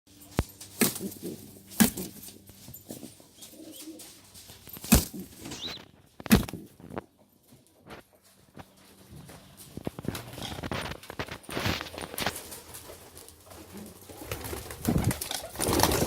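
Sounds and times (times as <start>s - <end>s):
pigeons cooing: 0.8s - 6.8s, 12.2s - 16.0s.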